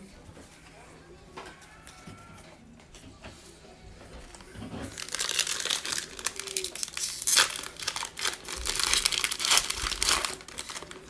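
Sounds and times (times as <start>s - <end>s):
foil wrapper tearing and crinkling: 4.3s - 11.0s.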